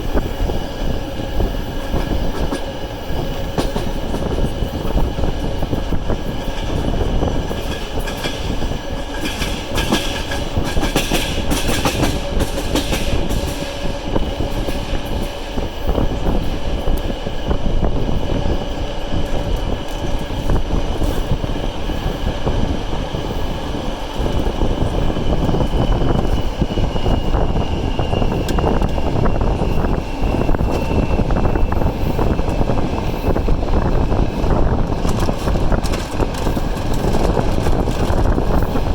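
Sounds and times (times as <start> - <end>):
train rumble: 0.0 - 38.9
train wheels clattering: 0.0 - 38.9.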